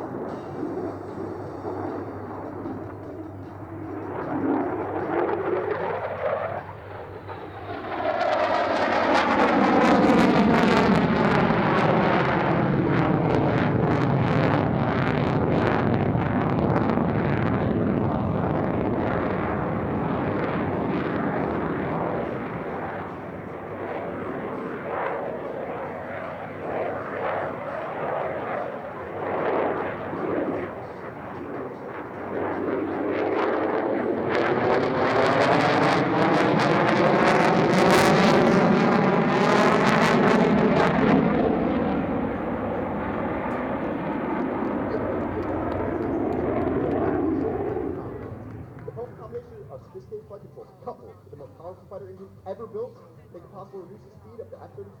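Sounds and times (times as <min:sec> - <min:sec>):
jet engine roaring: 0:00.0 - 0:52.4.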